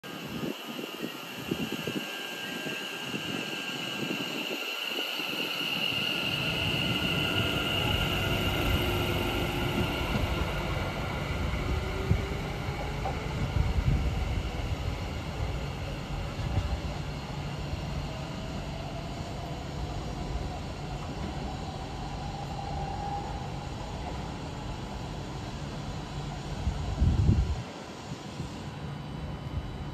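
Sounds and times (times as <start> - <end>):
train wheels rumbling on rail: 0.0 - 29.9
rising electric motor whine: 0.1 - 23.7.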